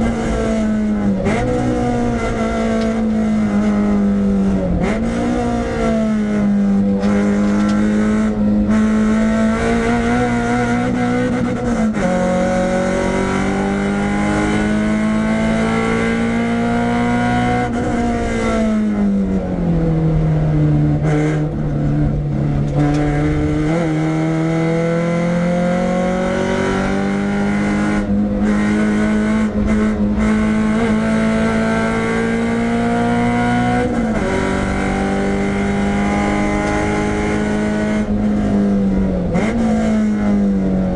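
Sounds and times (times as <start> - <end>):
car engine running hard: 0.0 - 40.9.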